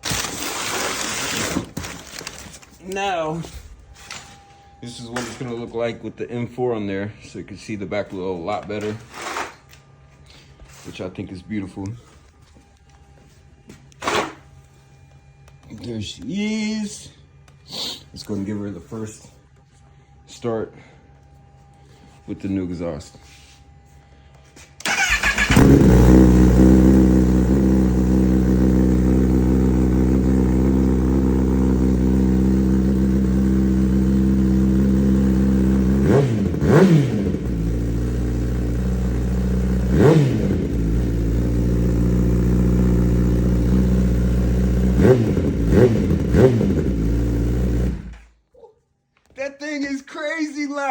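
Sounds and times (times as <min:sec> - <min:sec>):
motorcycle engine idling and revving: 0:24.9 - 0:48.3.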